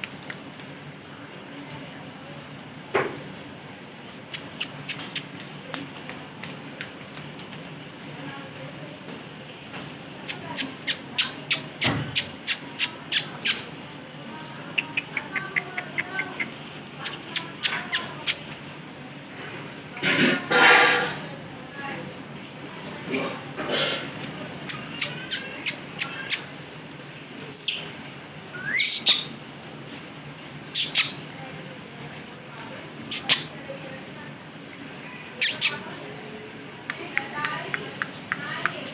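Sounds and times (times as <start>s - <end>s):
quiet parrot chirps: 4.4s - 5.4s, 30.7s - 31.2s, 33.1s - 33.5s, 35.4s - 35.9s
parrot squawking: 10.2s - 13.7s, 14.8s - 18.5s, 24.7s - 26.5s, 28.5s - 29.3s, 30.7s - 31.2s, 33.1s - 33.5s, 35.4s - 35.9s
parrot squawks: 28.6s - 29.3s, 30.7s - 31.2s, 35.4s - 35.8s.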